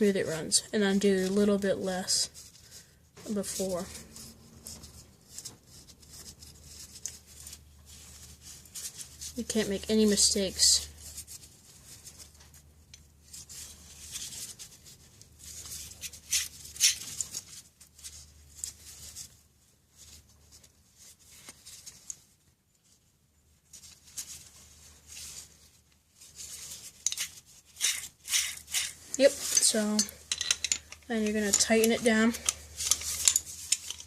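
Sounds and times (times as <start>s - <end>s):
metal tools scraping: 26.9s - 34.0s.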